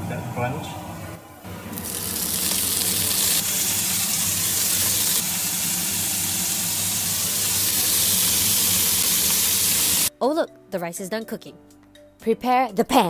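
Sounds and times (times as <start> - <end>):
bacon and garlic sizzling in oil: 1.5 - 10.1.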